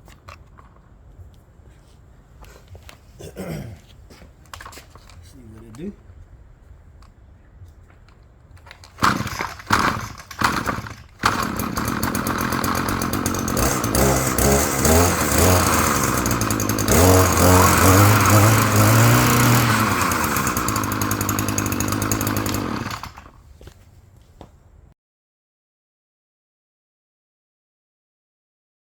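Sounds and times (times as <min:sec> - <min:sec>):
two-stroke engine starting and revving: 0:09.0 - 0:23.4.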